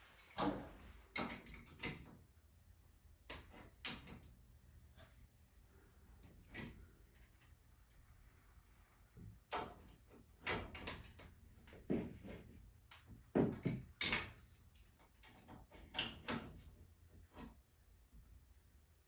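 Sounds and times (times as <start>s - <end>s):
tools knocking and clanking: 13.4s - 14.6s.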